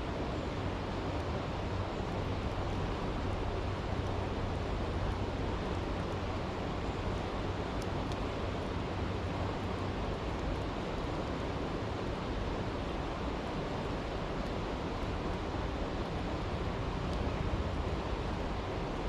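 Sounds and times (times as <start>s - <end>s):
faint campfire crackles: 0.0s - 19.0s.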